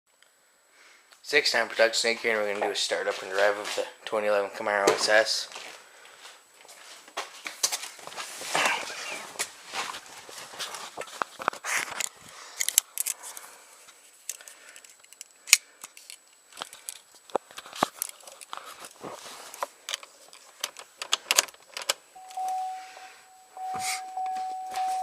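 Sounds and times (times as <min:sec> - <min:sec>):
steady electronic chime tone: 0:22.1 - 0:25.0.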